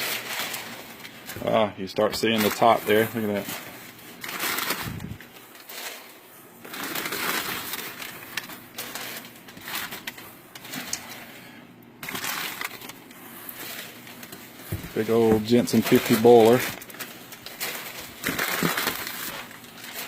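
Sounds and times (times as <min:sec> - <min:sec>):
packing paper rustling: 0:00.0 - 0:20.0.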